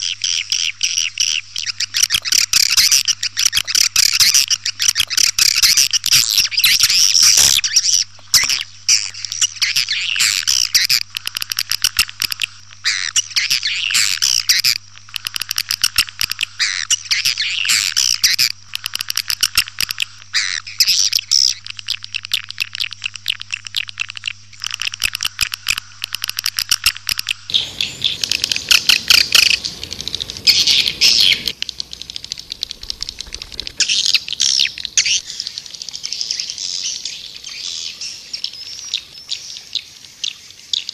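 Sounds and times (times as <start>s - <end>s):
swiftlets twittering chirps: 24.0s - 40.9s
steady low hum: 27.3s - 39.3s.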